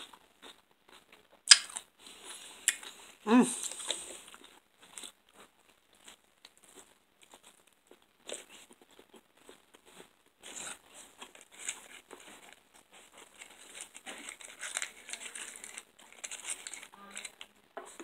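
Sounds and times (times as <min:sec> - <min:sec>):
chewing crunchy food: 0:00.0 - 0:18.0
mouth clicks: 0:01.5 - 0:01.8, 0:02.6 - 0:02.9.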